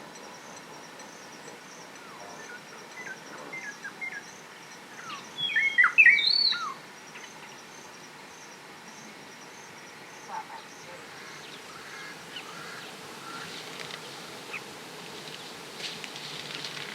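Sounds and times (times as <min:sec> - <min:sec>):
faint high insect chirp: 0:00.0 - 0:16.9
bird chirps: 0:05.0 - 0:07.6.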